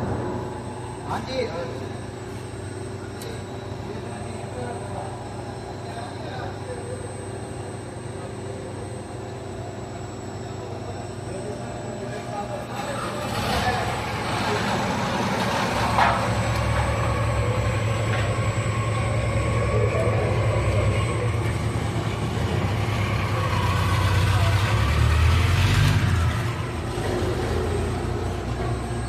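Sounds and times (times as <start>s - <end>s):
truck engine rumbling: 12.8s - 29.0s.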